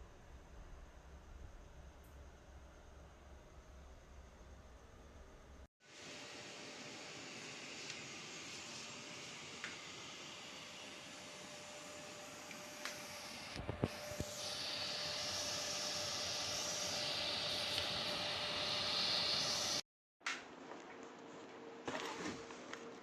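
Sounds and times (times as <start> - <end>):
dryer fan blowing hiss: 5.8 - 19.8.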